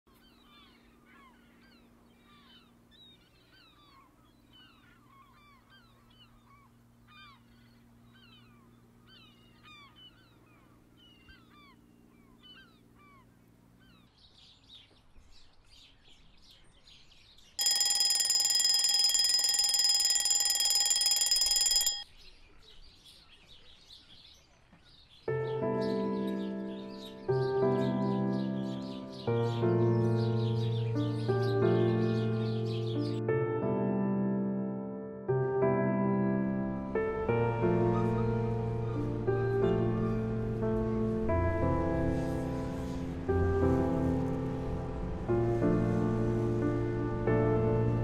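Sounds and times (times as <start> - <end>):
gulls calling: 0.1 - 14.2, 36.8 - 48.0
songbirds chirping: 0.1 - 18.0, 21.8 - 33.3, 36.7 - 48.0
alarm clock ringing: 17.6 - 22.1.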